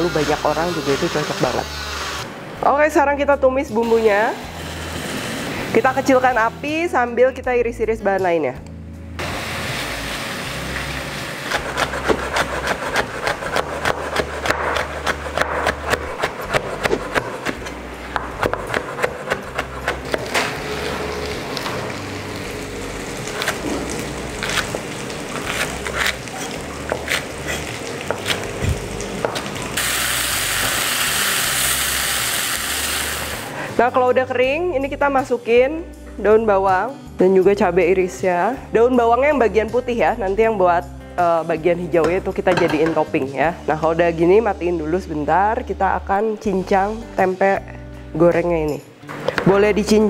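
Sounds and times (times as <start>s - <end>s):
paste sizzling in oil: 9.2s - 13.1s, 20.5s - 33.6s
knife chopping on cutting board: 11.5s - 20.4s, 25.4s - 29.5s.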